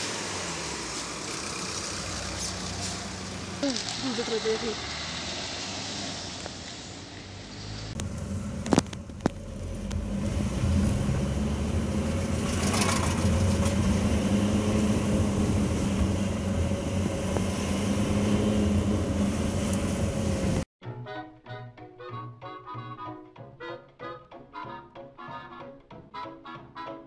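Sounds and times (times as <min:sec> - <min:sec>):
car engine and road hum: 0:00.0 - 0:20.7.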